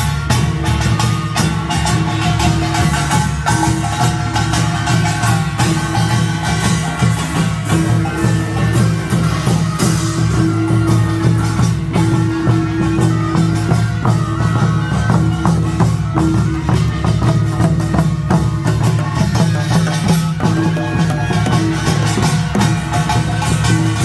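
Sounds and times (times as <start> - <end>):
gong and drum band playing: 0.0 - 24.0.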